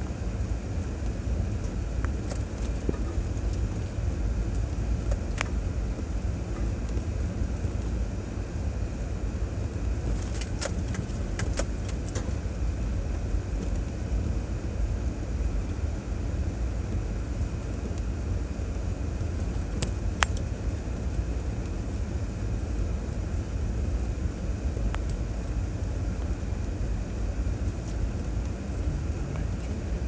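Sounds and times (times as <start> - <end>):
vehicle rumbling on dirt trail: 0.0 - 30.0
sharp rattles and clicks: 10.0 - 12.5.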